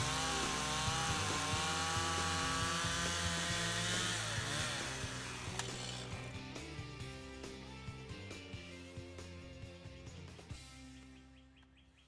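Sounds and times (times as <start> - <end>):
chainsaw cutting log: 0.0 - 6.5.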